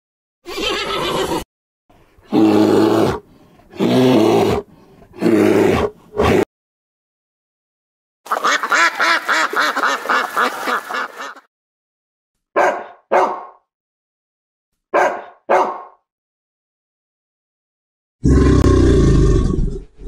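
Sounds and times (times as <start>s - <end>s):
mallard ducks quacking: 8.3s - 11.5s.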